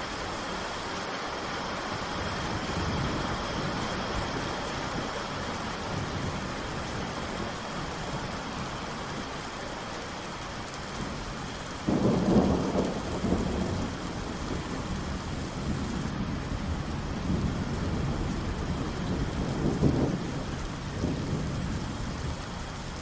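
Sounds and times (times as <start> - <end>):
steady rain: 0.0 - 23.0
thunderclap rumbling: 11.8 - 22.4.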